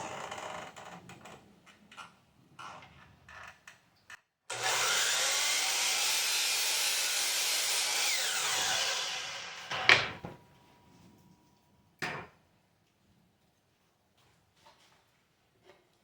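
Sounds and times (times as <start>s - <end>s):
power saw cutting wood: 4.5s - 10.1s.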